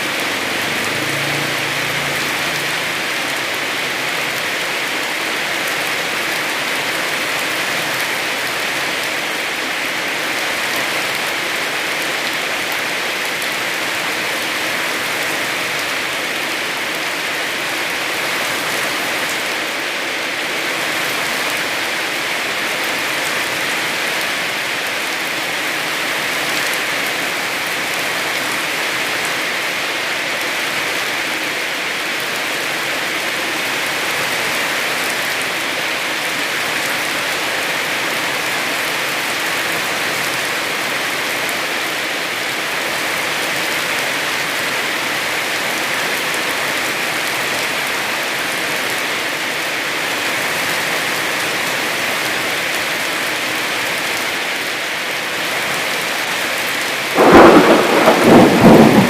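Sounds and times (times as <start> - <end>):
heavy rain falling: 0.0 - 59.0
thunder clap rumbling: 57.2 - 59.0.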